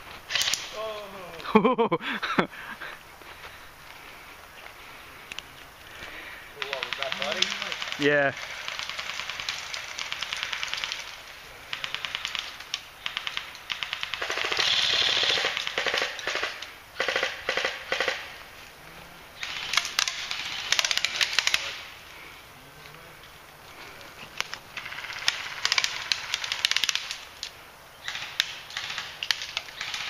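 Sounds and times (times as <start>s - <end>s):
airsoft guns firing bursts: 6.6s - 18.4s, 19.4s - 21.8s, 24.8s - 27.2s, 28.0s - 30.0s.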